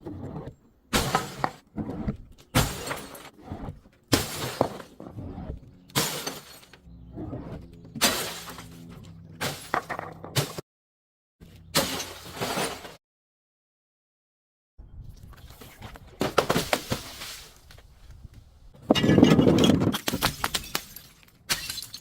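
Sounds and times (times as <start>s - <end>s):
glass bottles smashing: 2.6s - 3.3s, 6.0s - 6.8s, 8.0s - 8.7s, 20.2s - 22.0s
broken glass tinkling: 20.6s - 22.0s.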